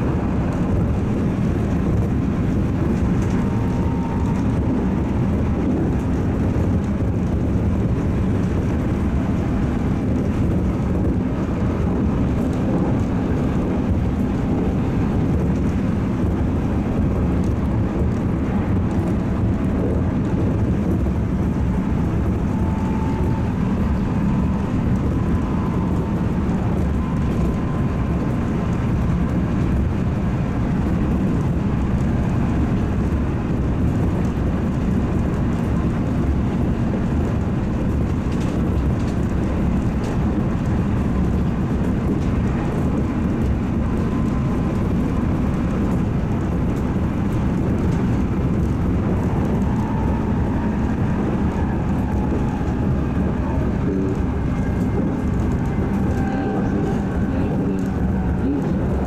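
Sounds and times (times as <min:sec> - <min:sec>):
traction motor noise: 0:00.0 - 0:59.0
train wheels rumbling on rail: 0:00.0 - 0:59.0.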